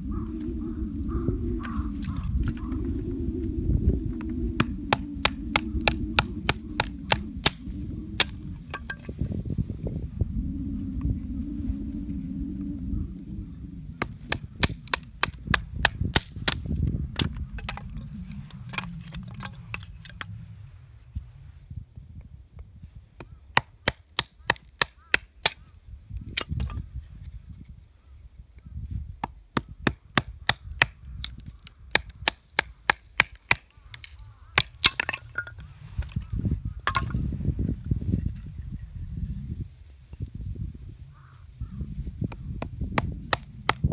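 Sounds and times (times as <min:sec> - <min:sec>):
low rumble: 0:00.0 - 0:22.5
dry wood snapping and cracking: 0:01.6 - 0:02.8, 0:04.2 - 0:09.2, 0:14.0 - 0:20.3, 0:23.2 - 0:25.7, 0:26.3 - 0:26.8, 0:29.2 - 0:37.2, 0:42.6 - 0:43.9.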